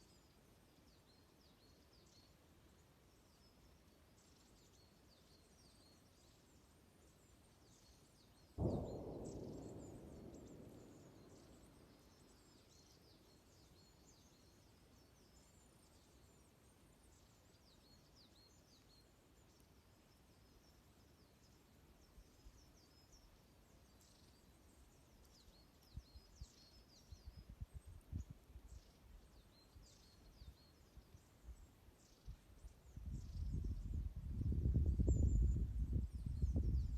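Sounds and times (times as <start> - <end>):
small birds chirping: 0.0 - 36.9
fire crackling: 8.6 - 12.6.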